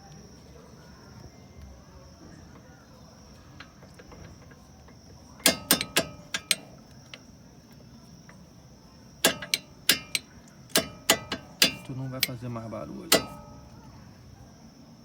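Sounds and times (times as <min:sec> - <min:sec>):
faint high-pitched chirring: 0:00.0 - 0:15.0
metal tapping on metal: 0:03.6 - 0:07.3, 0:09.2 - 0:13.8.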